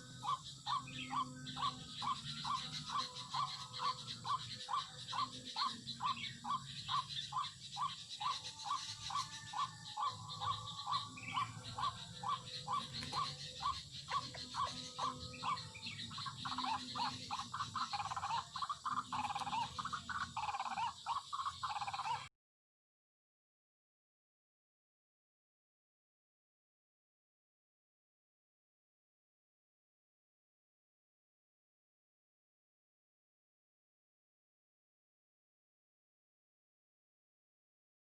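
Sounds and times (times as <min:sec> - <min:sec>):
waterhen calls: 0:00.2 - 0:22.3.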